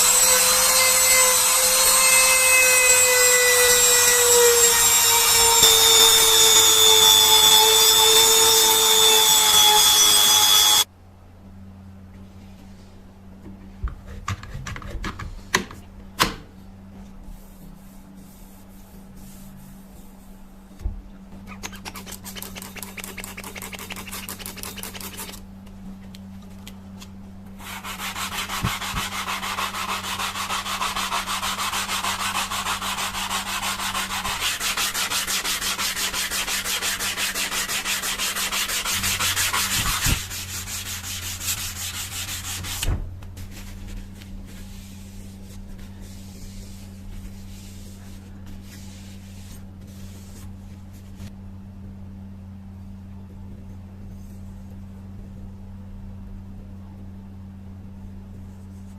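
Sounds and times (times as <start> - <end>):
knife blade rubbing on abrasive: 21.5 - 25.4.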